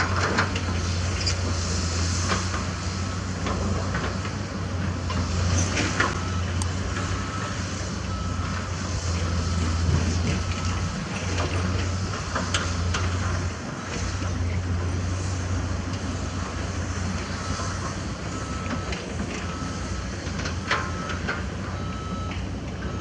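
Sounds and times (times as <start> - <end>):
construction machinery engine rumble: 0.0 - 23.0
reversing alarm beeping: 5.7 - 12.2, 17.2 - 23.0.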